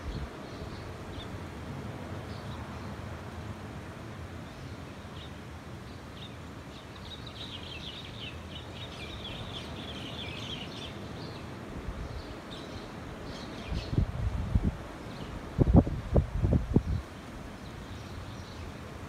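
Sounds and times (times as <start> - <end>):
low wind rumble: 0.0 - 4.4, 8.8 - 19.0
birds chirping and chattering: 4.4 - 14.0.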